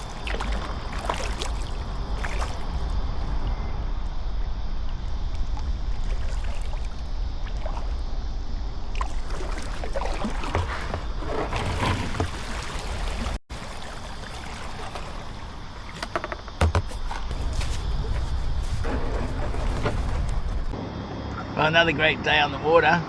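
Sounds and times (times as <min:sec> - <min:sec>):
paddle strokes splashing: 0:00.0 - 0:03.0, 0:05.9 - 0:08.0, 0:08.9 - 0:20.8
wind rumble on microphone: 0:00.0 - 0:13.4, 0:16.7 - 0:20.8
water trickling off paddle: 0:09.0 - 0:20.7.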